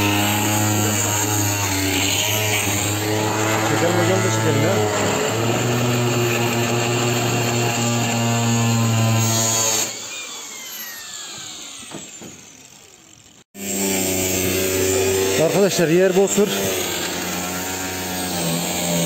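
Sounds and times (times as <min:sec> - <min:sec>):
power tool motor whine: 0:00.0 - 0:19.0.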